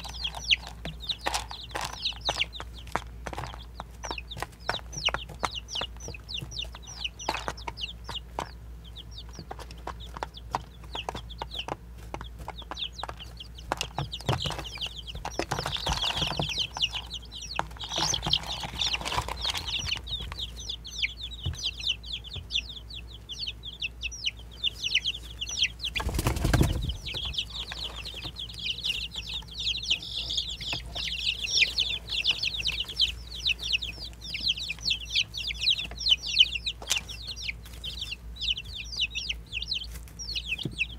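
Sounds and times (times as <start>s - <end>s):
baby chicks peeping: 0.0s - 40.9s
rustling: 9.2s - 21.9s, 24.7s - 36.0s.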